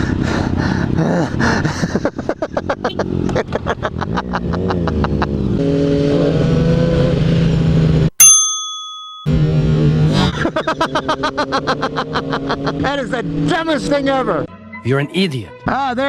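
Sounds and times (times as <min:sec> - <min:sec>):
loud ding: 0:08.2 - 0:09.4.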